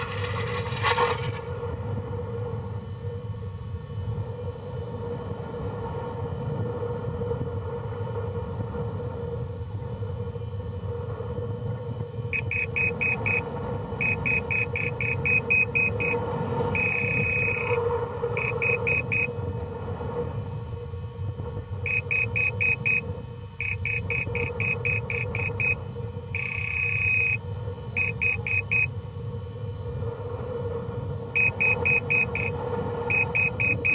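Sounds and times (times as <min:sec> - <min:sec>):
low rumble and hum: 0:00.0 - 0:33.9
flight computer beeping: 0:08.1 - 0:33.9.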